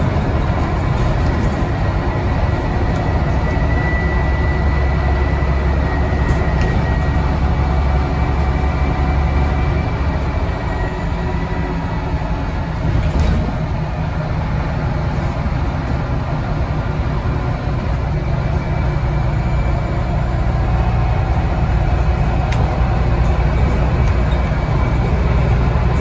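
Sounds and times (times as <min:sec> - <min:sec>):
bus engine rumble: 0:00.0 - 0:26.0.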